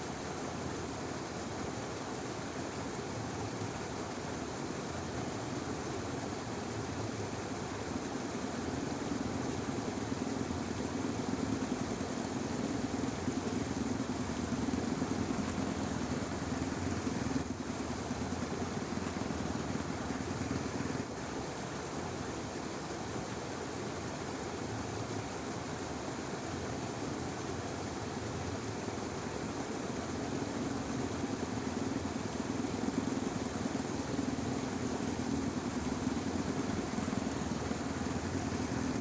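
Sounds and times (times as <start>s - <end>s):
outdoor ambient hiss: 0.0s - 39.0s
distant engine droning: 8.9s - 21.2s.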